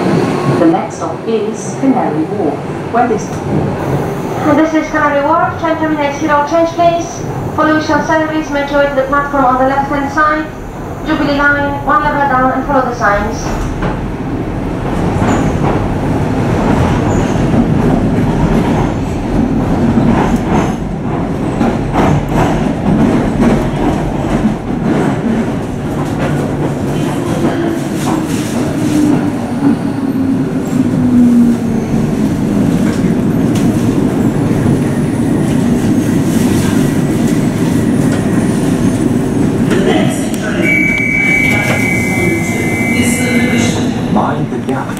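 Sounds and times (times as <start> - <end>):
steady train hum: 0.0 - 44.9
train braking whine: 40.6 - 43.9.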